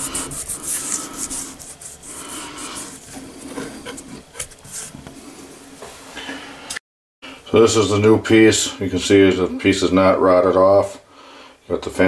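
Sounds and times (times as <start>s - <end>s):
scrubbing and scraping strokes: 0.0s - 6.2s.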